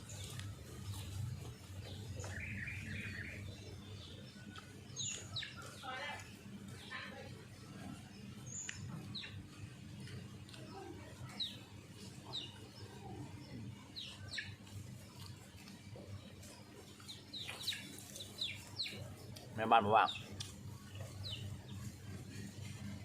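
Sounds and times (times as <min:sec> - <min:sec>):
low steady background hum: 0:00.0 - 0:23.0
small birds chirping: 0:00.0 - 0:23.0.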